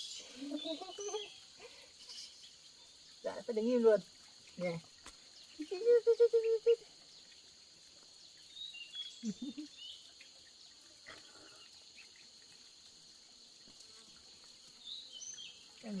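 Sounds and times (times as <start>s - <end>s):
bird chirps: 0.0s - 3.8s, 8.2s - 12.5s, 14.8s - 16.0s
insects chirring chorus: 0.0s - 16.0s.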